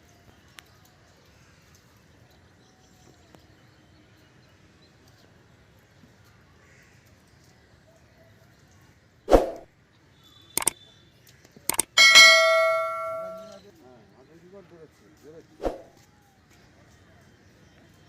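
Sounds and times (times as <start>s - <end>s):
small click: 11.4s - 13.6s.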